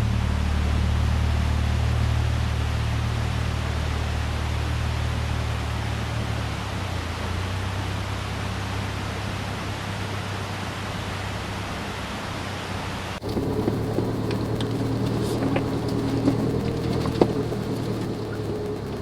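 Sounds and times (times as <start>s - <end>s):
car engine droning: 0.0s - 19.0s
steady rushing noise: 0.0s - 19.0s
small clicks and knocks: 13.2s - 19.0s.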